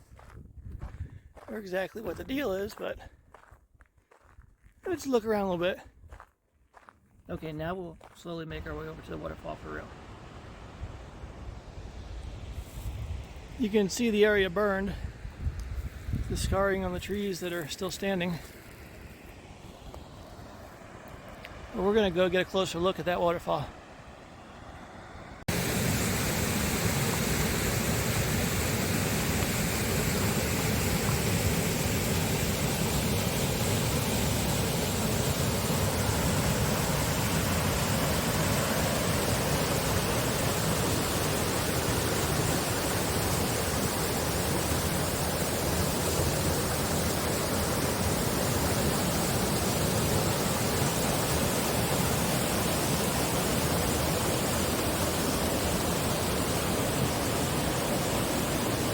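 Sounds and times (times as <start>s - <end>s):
waterfall roaring: 25.5s - 58.9s.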